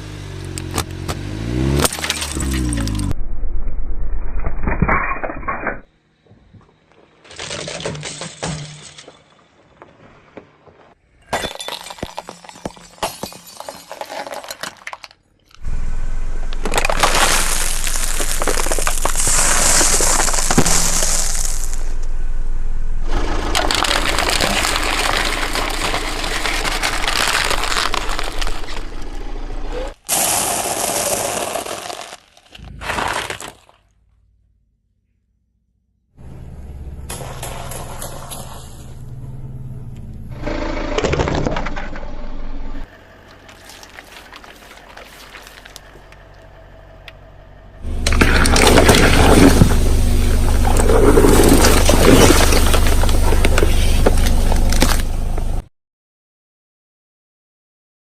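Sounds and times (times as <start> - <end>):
objects crunching under car tyres: 0.5 - 3.1, 16.4 - 22.0, 23.1 - 34.0, 43.1 - 46.6, 47.8 - 55.6
low rumble: 2.3 - 5.9, 15.6 - 30.0, 34.1 - 44.9, 45.6 - 55.6.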